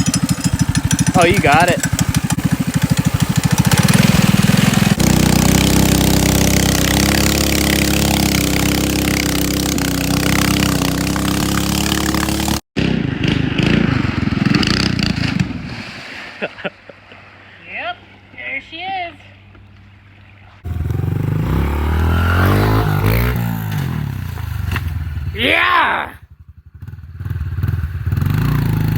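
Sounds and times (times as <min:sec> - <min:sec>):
mini bike engine running: 0:00.0 - 0:15.2
rough engine sound: 0:00.0 - 0:15.7, 0:20.6 - 0:25.4.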